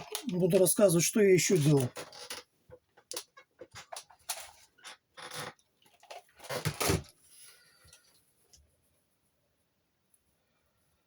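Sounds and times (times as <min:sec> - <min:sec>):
clicks and rustles of handling: 0:00.0 - 0:07.2.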